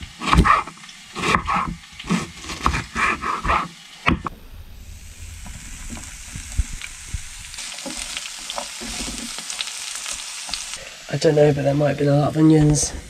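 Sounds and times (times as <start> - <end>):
onions sizzling in a pan: 0.0 - 13.0
spatula scraping pan: 7.6 - 9.7.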